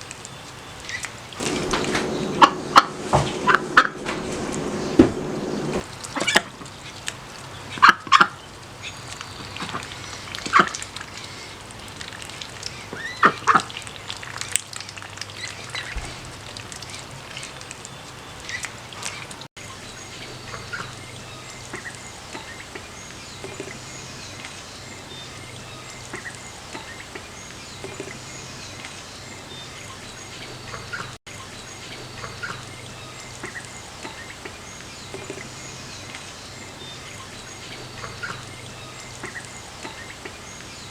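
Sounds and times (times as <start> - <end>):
ducks quacking: 1.4 - 5.8.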